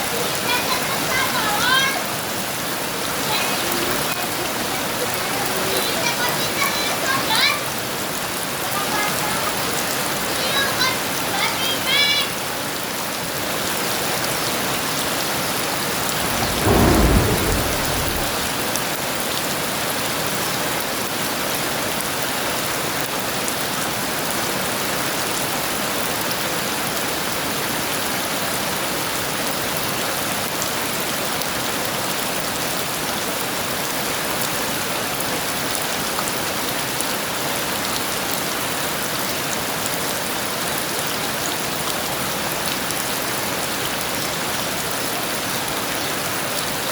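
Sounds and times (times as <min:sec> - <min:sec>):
heavy rain falling: 0:14.1 - 0:20.0
low clap of thunder: 0:15.8 - 0:19.0.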